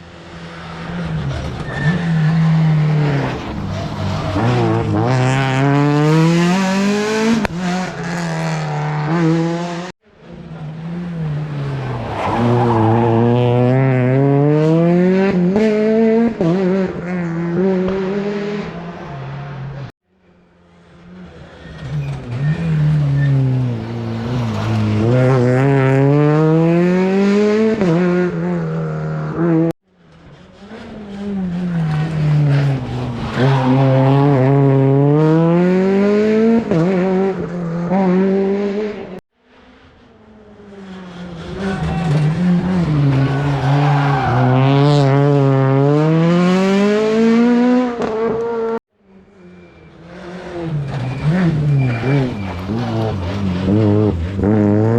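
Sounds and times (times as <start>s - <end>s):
rally car engines passing: 0.0s - 54.9s
tyre squeal: 1.5s - 2.5s, 21.5s - 24.6s, 49.3s - 53.8s.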